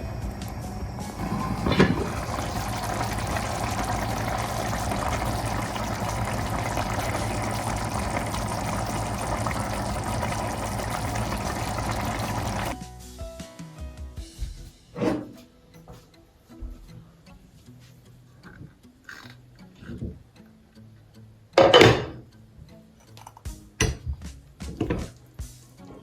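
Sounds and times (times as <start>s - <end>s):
water running: 1.2s - 12.8s.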